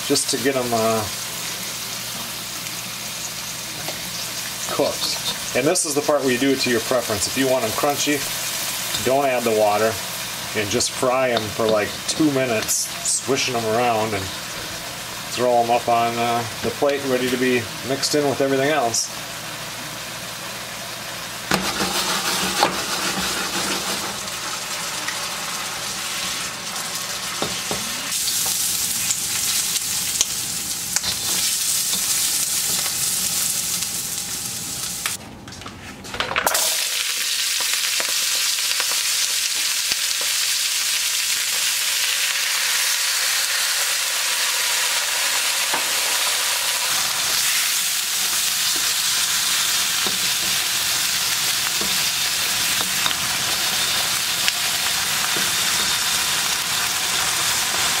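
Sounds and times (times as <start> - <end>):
vegetables sizzling in a wok: 0.0 - 35.2, 36.4 - 58.0
spatula scraping a wok: 21.5 - 24.3.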